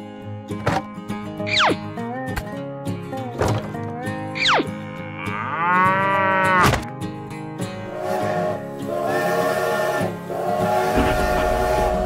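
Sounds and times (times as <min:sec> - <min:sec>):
background music: 0:00.0 - 0:12.0
cow mooing: 0:04.7 - 0:06.7
quick falling whistle: 0:10.9 - 0:12.0.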